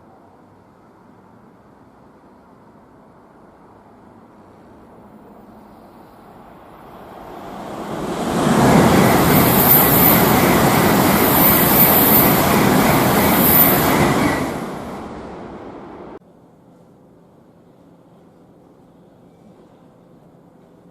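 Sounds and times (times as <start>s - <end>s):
high-speed train passing: 3.2s - 16.2s.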